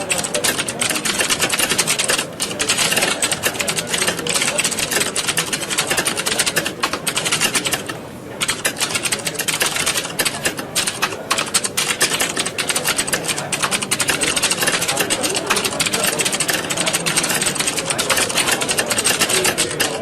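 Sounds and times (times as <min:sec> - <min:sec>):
people typing on keyboards: 0:00.0 - 0:20.0.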